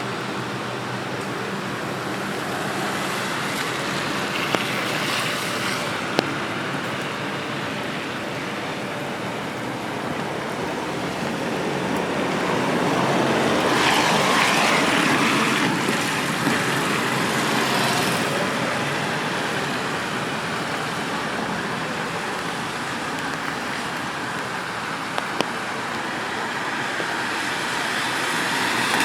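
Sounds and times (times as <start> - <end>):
rain on wet street: 0.0 - 29.0
vehicle passing on wet road: 0.0 - 29.0.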